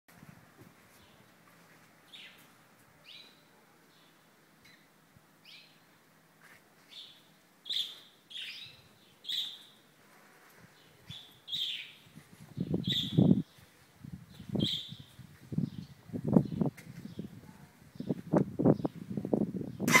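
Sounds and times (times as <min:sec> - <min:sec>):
small bird chirping: 0:06.9 - 0:09.8, 0:11.0 - 0:12.0, 0:12.6 - 0:13.6, 0:14.4 - 0:17.3.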